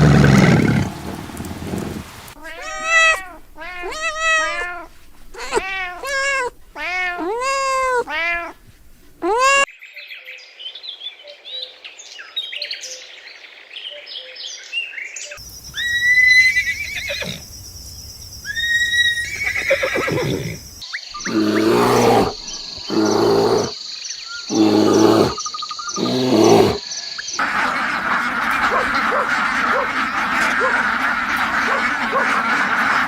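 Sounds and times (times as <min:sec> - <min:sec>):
loud animal call: 0:00.0 - 0:08.6, 0:09.2 - 0:09.7, 0:15.5 - 0:17.7, 0:18.4 - 0:23.8, 0:24.5 - 0:26.8, 0:27.4 - 0:33.0
small birds chirping: 0:00.0 - 0:09.7, 0:12.1 - 0:33.0
cat meowing: 0:02.4 - 0:08.6, 0:09.2 - 0:09.7.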